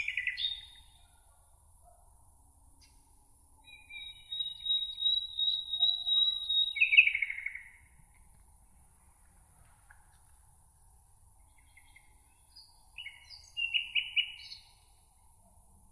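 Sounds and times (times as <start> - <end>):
songbird whistle and trill: 0.0 - 1.2, 3.6 - 7.8, 11.6 - 14.8.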